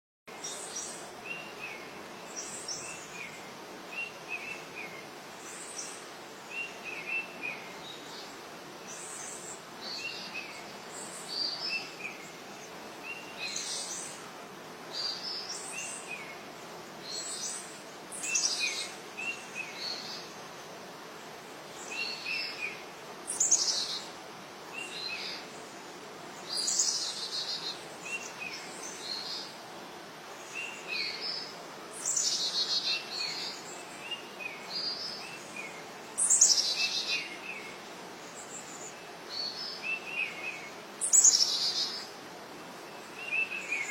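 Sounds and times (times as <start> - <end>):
steady hiss: 0.3 - 43.9.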